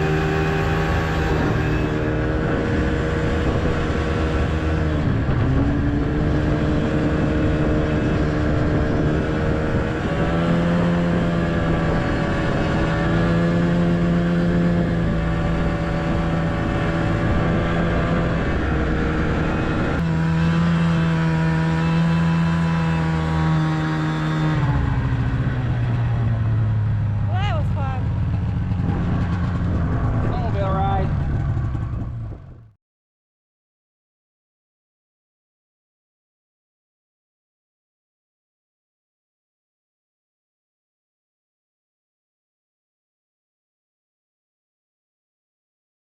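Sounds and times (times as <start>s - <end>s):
vehicle engine running: 0.0s - 32.8s.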